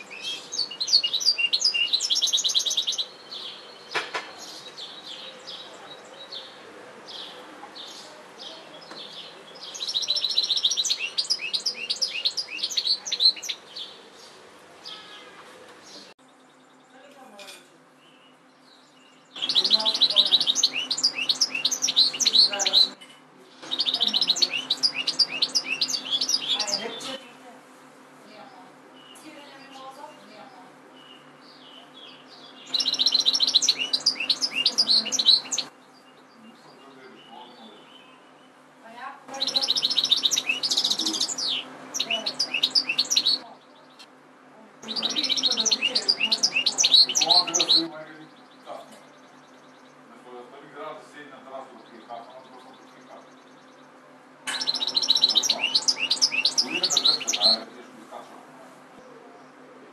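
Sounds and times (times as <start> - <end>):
goldfinch singing: 0.0 - 14.0, 18.0 - 23.0, 23.6 - 27.2, 29.0 - 38.5, 39.3 - 44.1, 44.8 - 50.0, 54.5 - 57.7.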